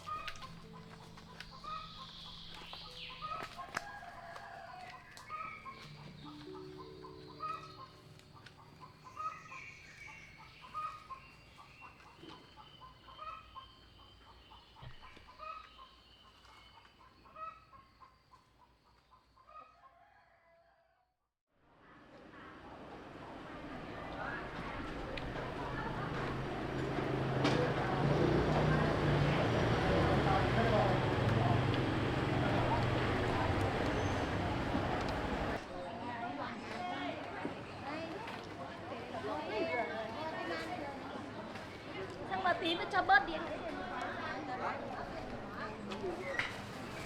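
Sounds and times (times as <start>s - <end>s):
chickens clucking: 0.0s - 15.9s, 24.0s - 35.6s.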